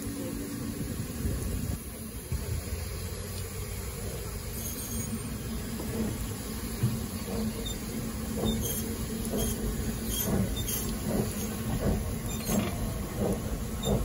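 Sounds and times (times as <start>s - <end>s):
train rumbling on rails: 0.0s - 14.0s
train wheel clicks: 5.7s - 14.0s.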